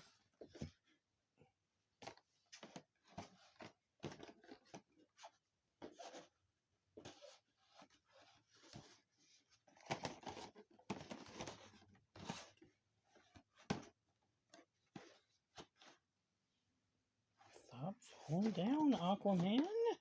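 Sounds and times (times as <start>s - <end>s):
packaging rustling and scraping: 2.0s - 6.4s, 7.0s - 16.1s, 17.4s - 20.0s.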